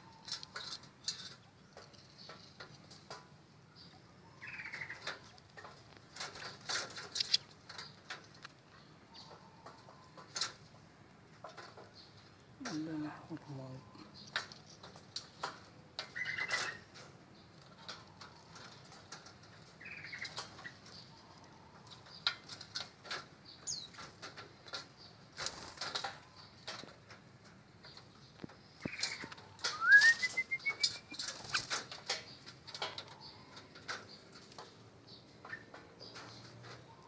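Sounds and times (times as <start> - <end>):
bird chirps: 3.7 - 5.4, 27.8 - 31.7
bird wings flapping: 25.3 - 26.2, 28.9 - 32.0
rising whistled call: 29.7 - 31.2.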